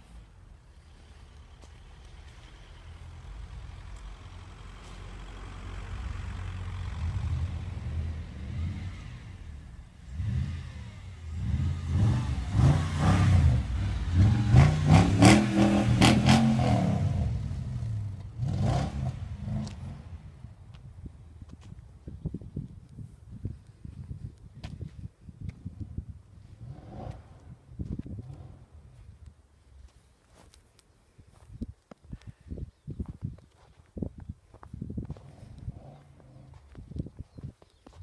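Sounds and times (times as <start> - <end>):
car engine revving: 2.7 - 20.4.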